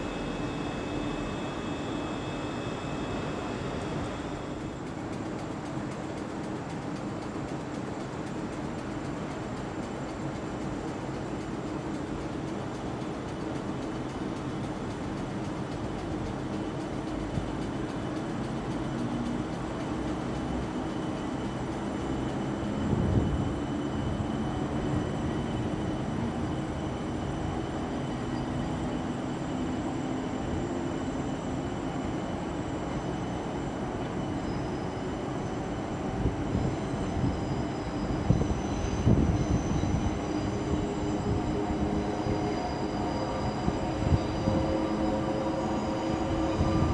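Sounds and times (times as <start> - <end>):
high whining tones: 0.0 - 5.0, 32.4 - 46.9
train rumbling: 0.0 - 46.9.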